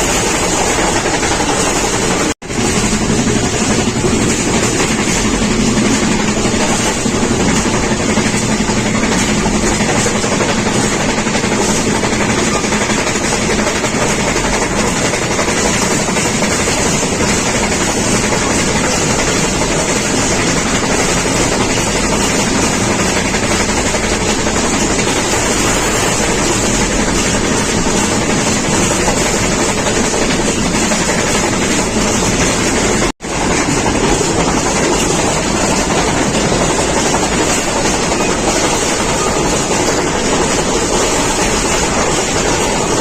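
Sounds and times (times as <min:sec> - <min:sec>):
moving train rushing: 0:00.0 - 0:43.0.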